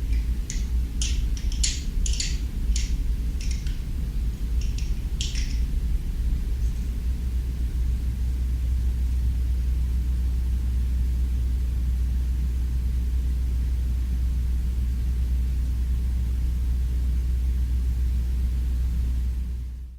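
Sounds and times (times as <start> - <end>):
deep hum: 0.0 - 10.0
steady low rumble: 0.0 - 19.8.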